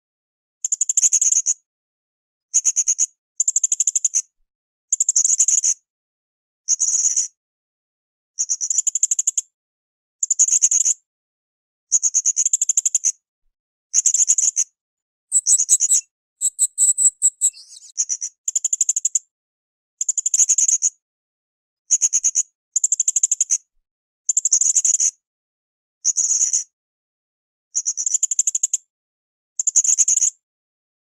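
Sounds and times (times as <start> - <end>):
parrot chattering trills: 15.3 - 17.9
thin whistled bird notes: 15.3 - 18.0.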